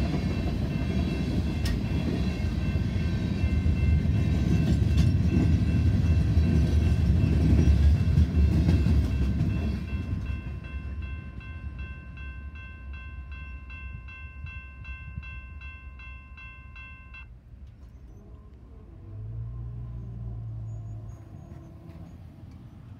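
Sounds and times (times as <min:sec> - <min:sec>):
freight cars rumbling on rails: 0:00.0 - 0:15.6, 0:17.5 - 0:22.9
crossing warning bell ringing: 0:00.0 - 0:17.4.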